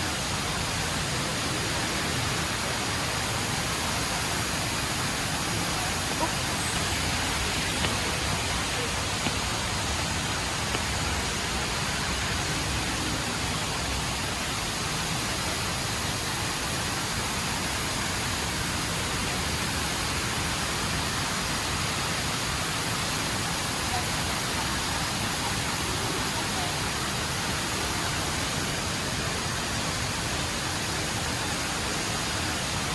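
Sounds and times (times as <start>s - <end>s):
indoor waterfall rushing: 0.0s - 32.9s
people's voices: 0.8s - 13.4s.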